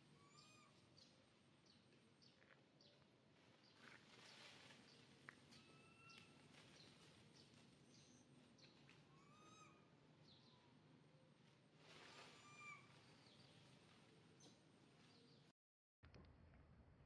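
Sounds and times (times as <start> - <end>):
faint bird calls: 5.5 - 6.4, 9.0 - 10.7, 12.1 - 13.5.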